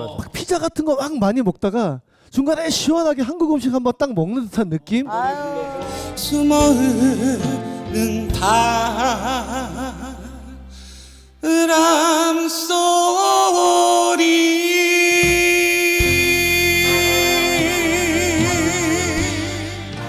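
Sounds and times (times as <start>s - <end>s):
man singing ballad: 5.1s - 20.0s
band accompaniment: 5.6s - 10.0s, 15.0s - 20.0s.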